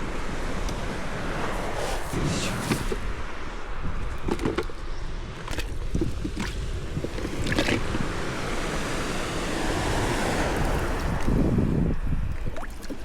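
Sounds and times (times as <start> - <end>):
wind on microphone: 0.0 - 13.0
water lapping against boat hull: 1.5 - 13.0
splashes: 5.4 - 11.5, 12.2 - 13.0.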